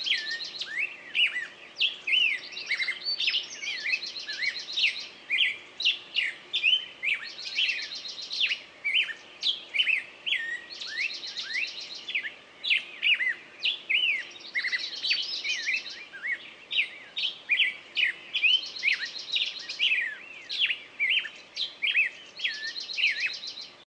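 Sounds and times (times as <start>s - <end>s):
birds chirping: 0.0s - 23.8s.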